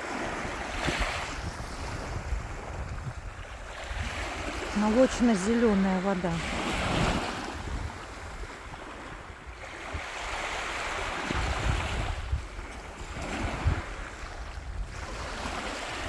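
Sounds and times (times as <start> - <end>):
sea waves washing onto shore: 0.0 - 16.0
wind buffeting microphone: 0.0 - 16.0.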